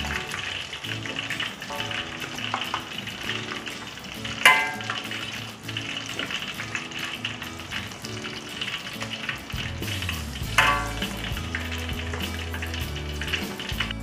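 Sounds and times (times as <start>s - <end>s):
hot oil sizzling: 0.0s - 14.0s.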